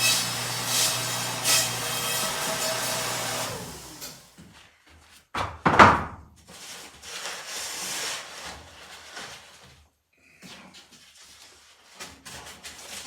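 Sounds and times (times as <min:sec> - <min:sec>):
motor winding down: 0:00.0 - 0:04.3.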